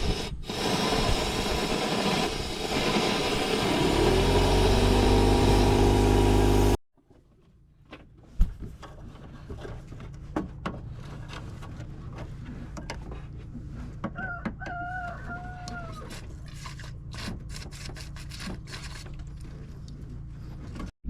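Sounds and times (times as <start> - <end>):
rooster crowing: 14.2 - 16.1.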